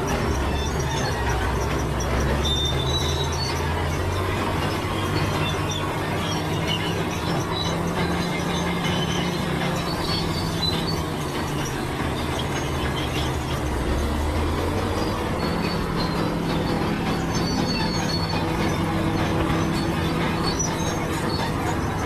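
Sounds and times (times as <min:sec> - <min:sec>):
diesel engine running: 0:00.0 - 0:22.0
steel tracks squealing and clanking: 0:00.0 - 0:22.0.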